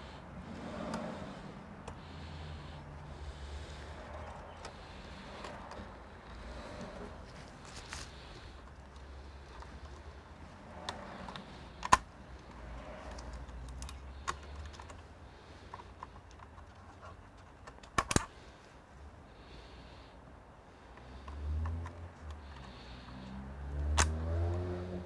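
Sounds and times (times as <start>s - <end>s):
light clicks and taps: 0.8s - 18.3s.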